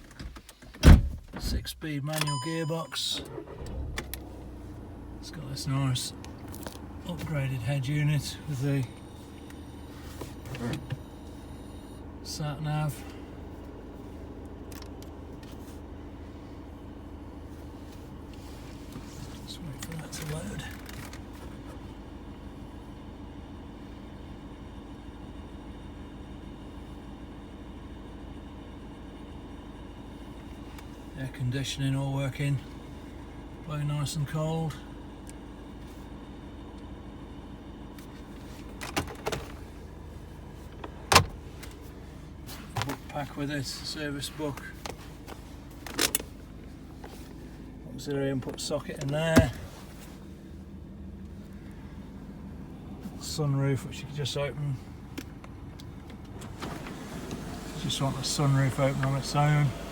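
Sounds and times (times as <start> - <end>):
car air conditioning blowing: 0.0 - 59.9
diesel engine idling: 1.5 - 59.9.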